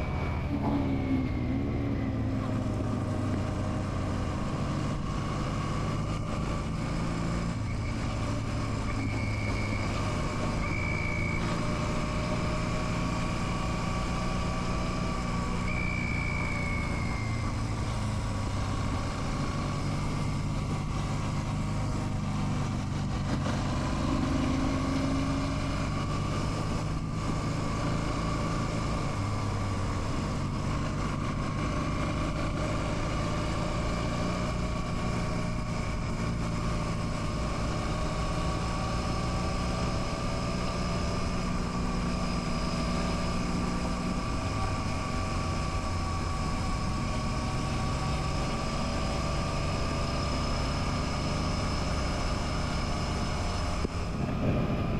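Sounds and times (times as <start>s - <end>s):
road and wind noise: 0.0s - 54.9s.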